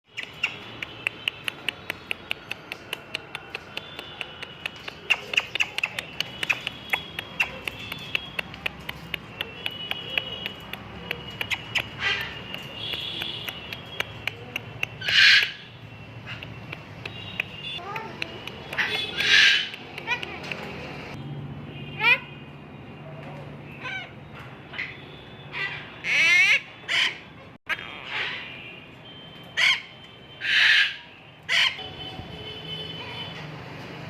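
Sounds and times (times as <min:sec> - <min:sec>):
harsh bird squawk: 0:15.0 - 0:15.7, 0:18.8 - 0:19.8, 0:29.6 - 0:31.8.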